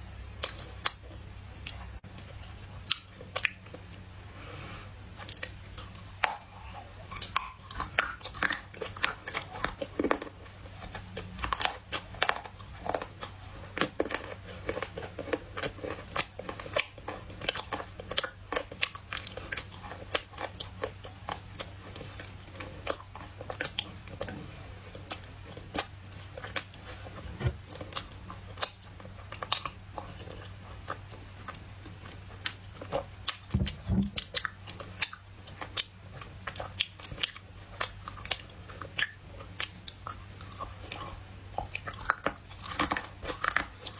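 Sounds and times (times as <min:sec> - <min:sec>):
crunchy chewing of dry clay: 0:00.0 - 0:43.9.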